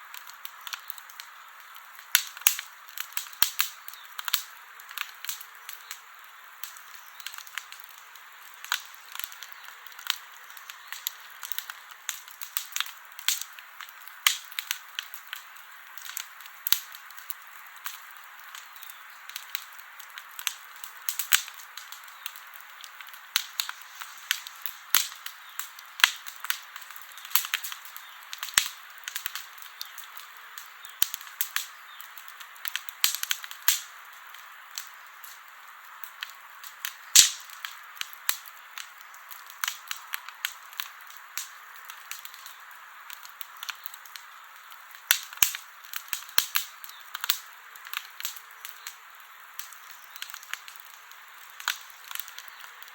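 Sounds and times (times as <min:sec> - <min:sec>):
campfire hissing: 0:00.0 - 0:52.9
fire crackles and pops: 0:00.0 - 0:52.9.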